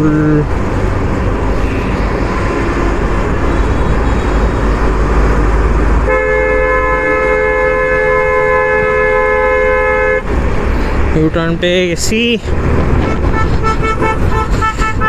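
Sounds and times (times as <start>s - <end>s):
road and wind rumble: 0.0s - 15.0s
vehicle horn blast: 6.0s - 10.3s, 13.0s - 15.0s.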